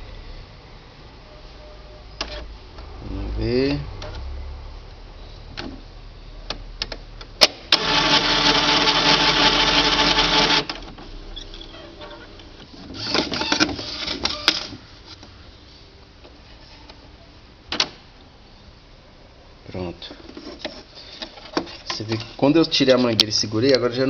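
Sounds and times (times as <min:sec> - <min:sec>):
printer motor whirring: 0:07.7 - 0:10.9.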